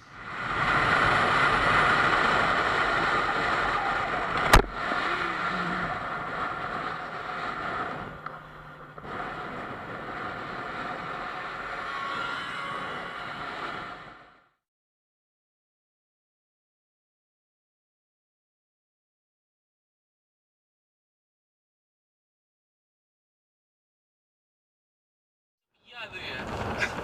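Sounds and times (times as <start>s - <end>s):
car road and wind noise: 0.0s - 14.4s, 26.1s - 27.0s.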